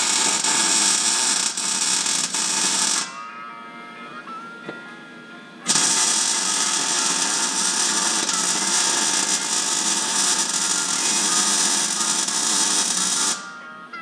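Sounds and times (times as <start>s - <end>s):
power tool running: 0.0s - 3.2s, 5.7s - 13.4s
faint background music: 0.0s - 14.0s.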